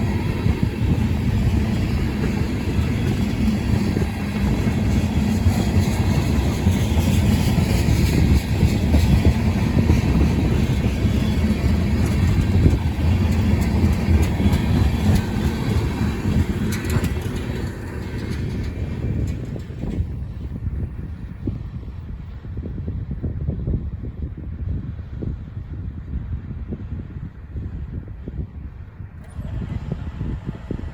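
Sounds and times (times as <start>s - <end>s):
freight train rolling past: 0.0s - 22.4s.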